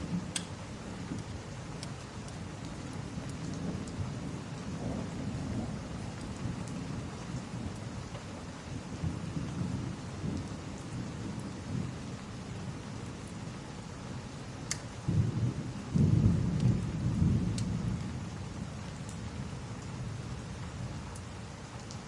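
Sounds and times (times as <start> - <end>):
steady rain: 0.0 - 22.0
rolling thunder: 2.2 - 13.6, 15.0 - 21.0.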